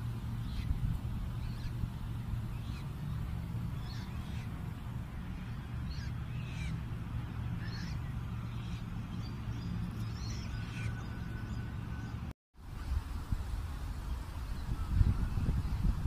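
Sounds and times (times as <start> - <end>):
steady low rumble: 0.0 - 16.0
birds chirping: 0.3 - 12.3.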